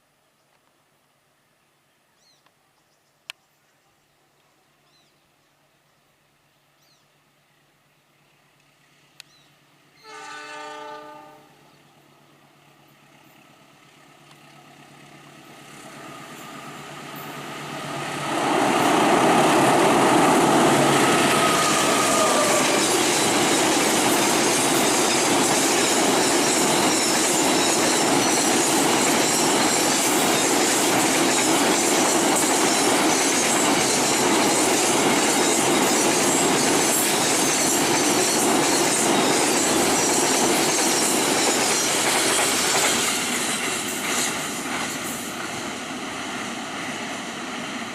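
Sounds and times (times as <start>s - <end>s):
train rushing past: 9.7s - 47.9s
locomotive two-tone horn: 10.0s - 11.7s, 21.0s - 23.0s.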